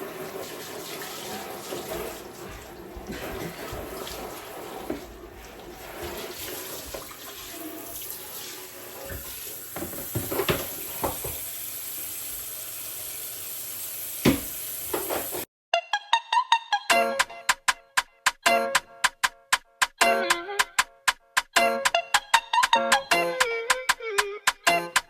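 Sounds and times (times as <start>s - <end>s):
tap water running into sink: 0.0s - 15.5s.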